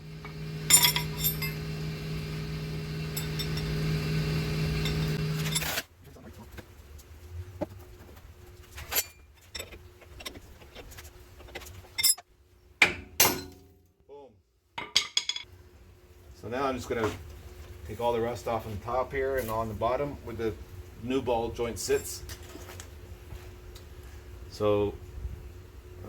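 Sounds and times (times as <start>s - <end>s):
power tool motor running: 0.0s - 5.8s
metallic clinks of tools: 0.7s - 1.6s.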